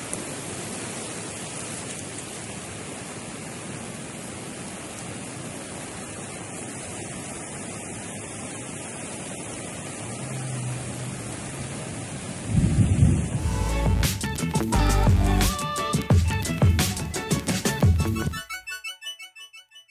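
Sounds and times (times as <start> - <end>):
flooding river rushing: 0.0 - 18.4.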